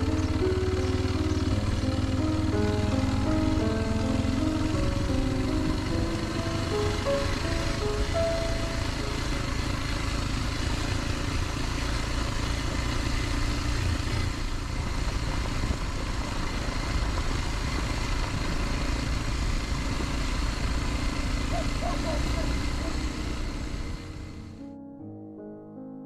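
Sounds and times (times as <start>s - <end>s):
motorcycle engine running: 0.0s - 24.8s
wind noise on microphone: 14.7s - 18.7s.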